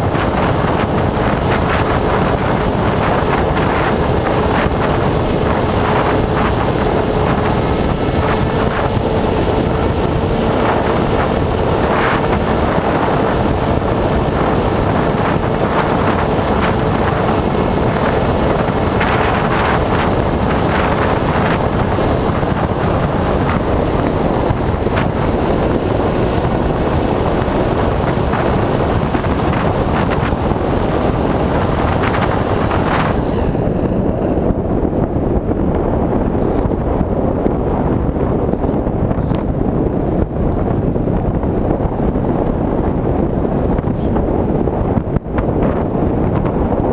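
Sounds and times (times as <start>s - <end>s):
electric motor and propeller drone: 0.0s - 37.0s
thin steady whine: 0.0s - 39.5s
wind rushing over camera: 0.0s - 46.9s.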